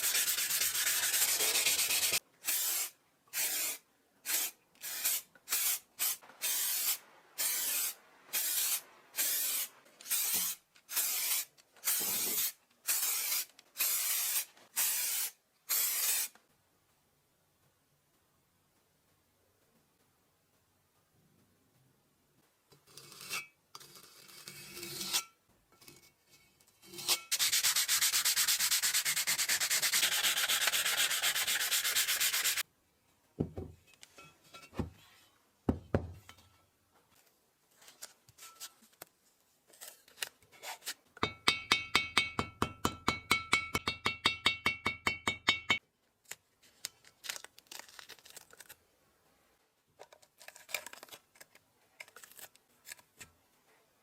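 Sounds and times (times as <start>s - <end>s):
sanding metal: 0.0s - 5.8s, 27.3s - 32.6s.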